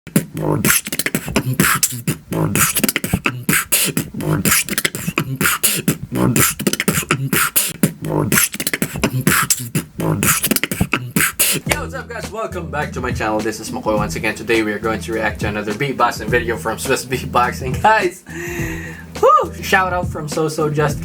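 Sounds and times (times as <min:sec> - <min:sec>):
beatboxing: 0:00.0 - 0:21.0.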